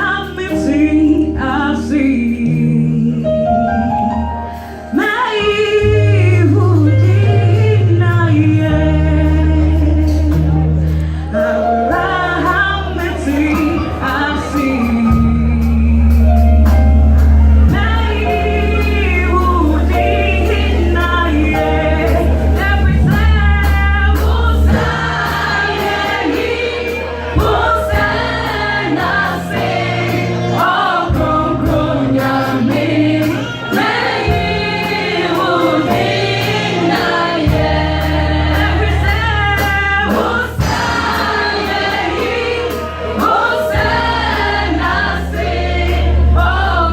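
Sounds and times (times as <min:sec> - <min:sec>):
low bass notes: 0:00.0 - 0:46.9
choir singing: 0:11.9 - 0:46.9.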